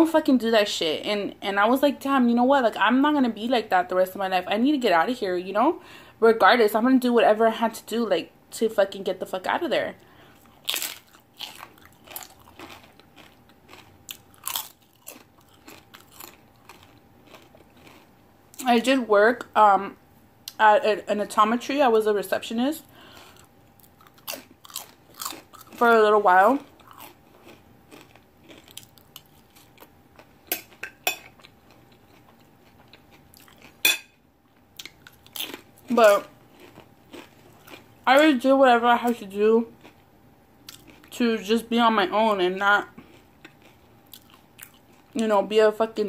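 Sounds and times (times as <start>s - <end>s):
chip crunching and chewing: 10.3s - 18.8s, 23.1s - 38.3s, 39.0s - 41.2s, 42.8s - 45.3s.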